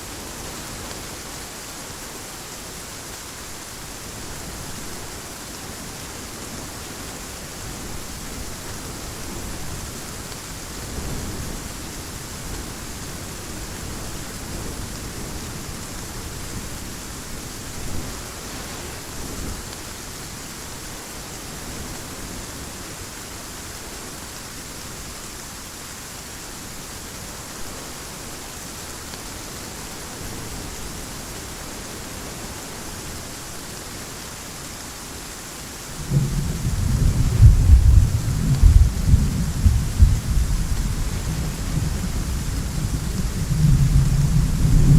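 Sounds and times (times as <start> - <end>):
heavy rain hissing: 0.0 - 44.9
distant thunder rumbles: 36.0 - 44.9.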